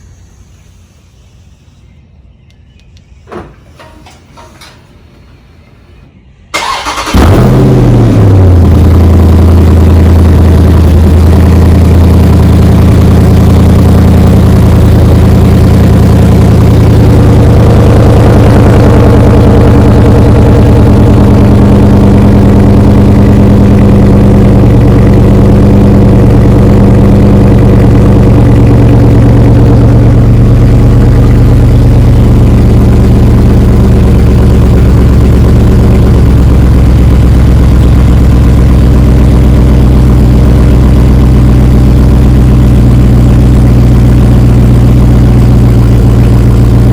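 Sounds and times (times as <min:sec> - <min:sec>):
car engine starting and idling: 0:06.5 - 0:46.9
car engine cranking: 0:06.6 - 0:11.4.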